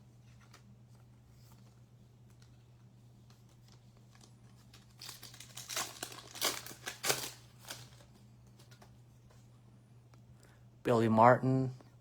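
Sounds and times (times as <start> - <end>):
plastic wrapper crinkling: 3.6 - 8.8.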